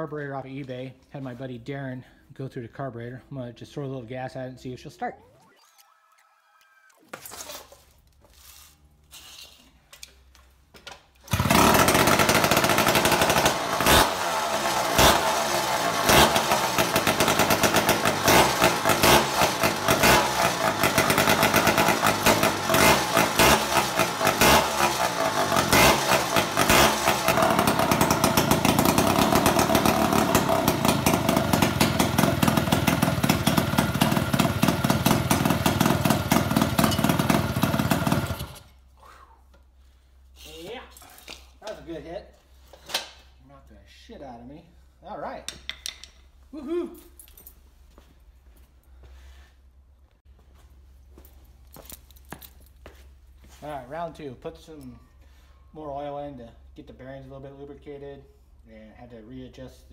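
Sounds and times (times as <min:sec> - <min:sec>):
two-stroke engine starting and revving: 0:11.2 - 0:38.8.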